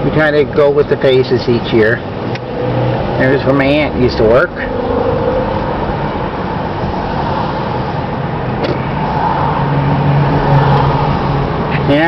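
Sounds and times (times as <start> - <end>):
car road noise inside cabin: 0.0 - 12.0.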